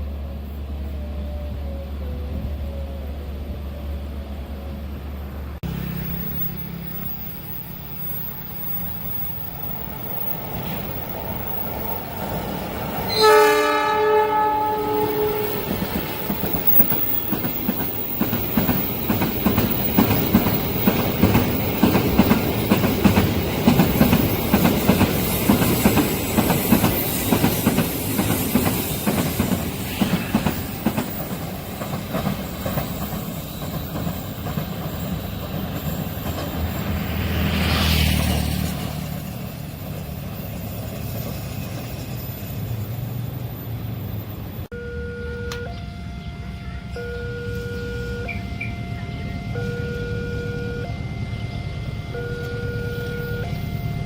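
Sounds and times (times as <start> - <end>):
train horn chord: 13.1 - 16.0, 44.8 - 53.6
train wheels clattering over rails: 15.3 - 42.4.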